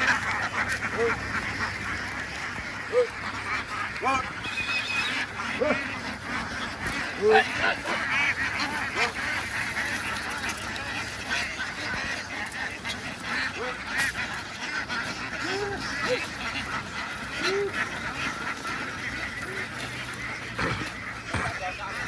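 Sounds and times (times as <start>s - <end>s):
ducks quacking: 0.0s - 22.0s.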